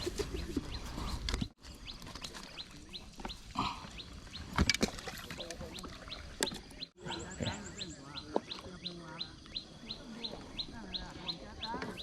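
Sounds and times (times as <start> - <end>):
bird chirping: 5.4 - 12.0.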